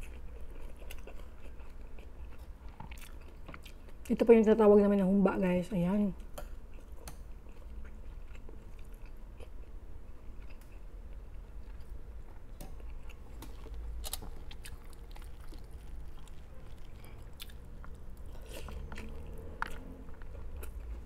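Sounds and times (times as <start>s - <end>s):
person chewing food: 0.0s - 4.1s, 6.2s - 21.0s.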